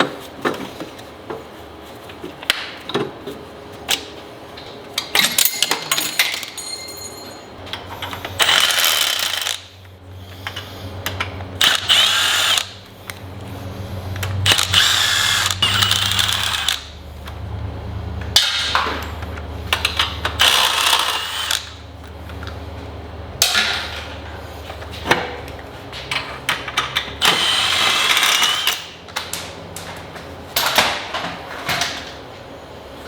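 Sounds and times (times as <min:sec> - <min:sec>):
power tool whining: 0:08.1 - 0:09.8, 0:11.6 - 0:17.0, 0:20.4 - 0:21.8, 0:27.2 - 0:28.9.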